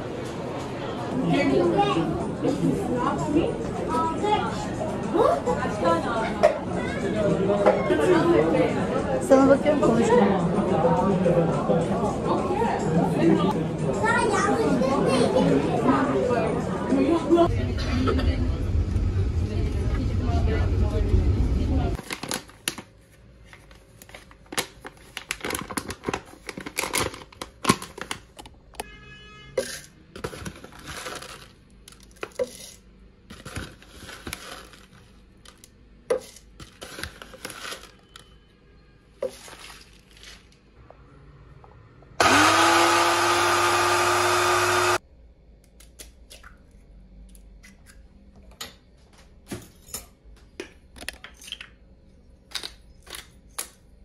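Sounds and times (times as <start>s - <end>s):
electric blender running: 42.2s - 45.0s.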